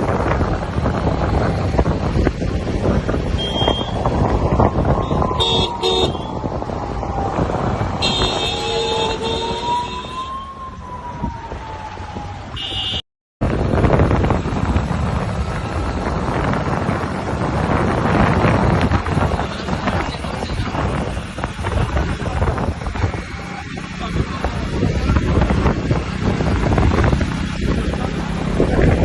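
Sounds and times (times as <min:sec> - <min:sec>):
street traffic rumble: 0:00.0 - 0:29.0
wind on microphone: 0:00.0 - 0:29.0
vehicle horns: 0:03.3 - 0:04.1, 0:05.0 - 0:06.4, 0:08.0 - 0:10.3, 0:12.6 - 0:13.0.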